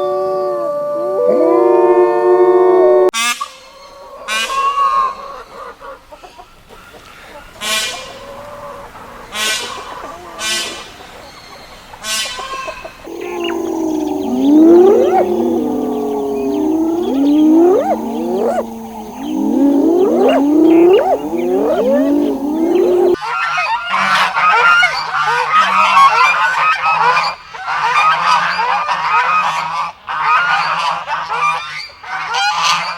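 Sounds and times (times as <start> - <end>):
flock calling in chorus: 13.1 - 23.2
gliding animal calls: 13.1 - 23.2.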